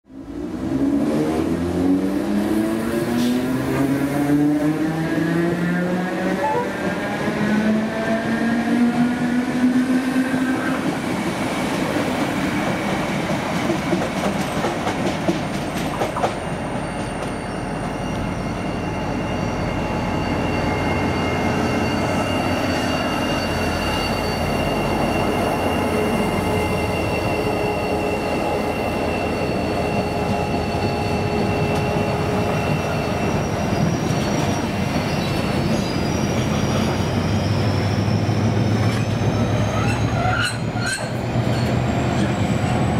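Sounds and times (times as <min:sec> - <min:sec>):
diesel locomotive engine: 0:00.1 - 0:42.9
train wheels rumbling on rail: 0:00.5 - 0:42.9
high wheel squeal: 0:06.2 - 0:07.6, 0:16.5 - 0:42.9.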